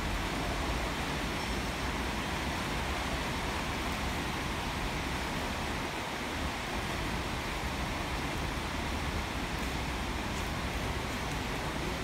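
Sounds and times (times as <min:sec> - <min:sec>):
rain on a steel roof: 0:00.0 - 0:12.0.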